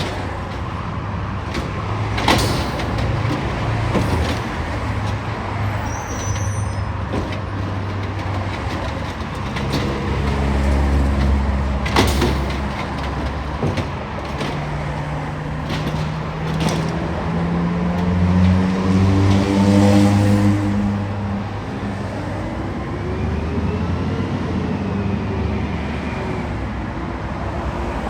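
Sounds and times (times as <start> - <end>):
garbage truck engine revving: 0.0 - 22.0
sharp knocks: 1.4 - 6.4, 7.0 - 21.0.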